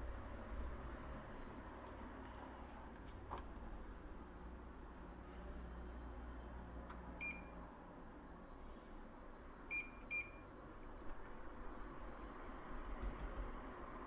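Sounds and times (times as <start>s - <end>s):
appliance control panel beeps: 7.2s - 7.6s, 9.3s - 13.2s.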